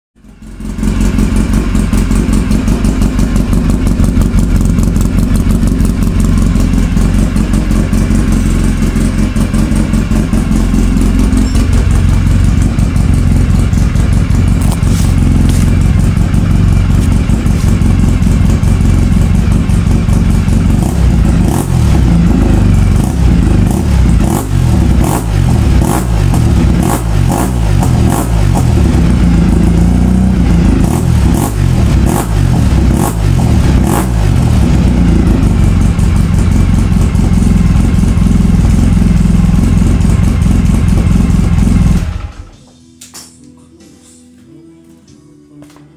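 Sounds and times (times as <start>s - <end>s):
atv engine idling loudly: 0.2s - 42.6s.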